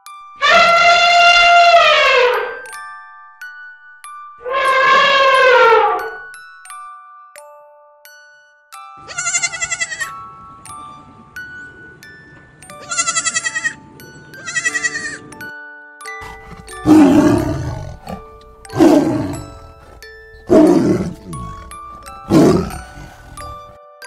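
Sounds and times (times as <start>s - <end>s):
light music with bell-like notes: 0.0s - 0.4s, 1.3s - 24.0s
goat bleating: 9.0s - 10.1s, 12.8s - 13.8s, 14.4s - 15.2s
tiger roaring: 16.2s - 23.7s.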